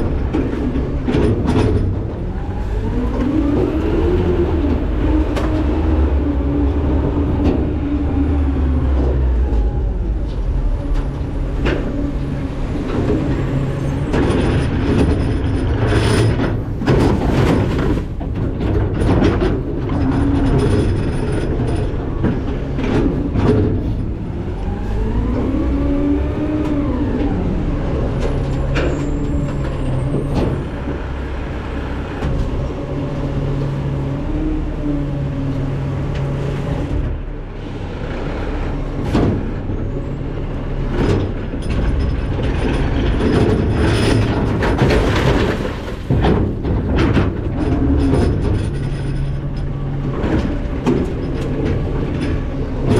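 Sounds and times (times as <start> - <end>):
trash knocking and clanking: 0.0 - 2.4, 11.0 - 24.3, 28.0 - 31.4, 38.9 - 39.8, 40.8 - 52.9
garbage truck engine and packer: 0.0 - 52.9.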